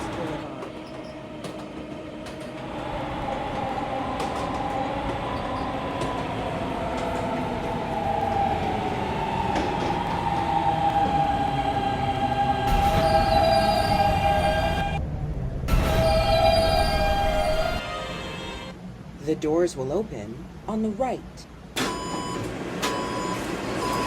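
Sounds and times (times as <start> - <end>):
high many-toned squeal: 9.8 - 15.0
train wheels squealing: 12.7 - 14.8.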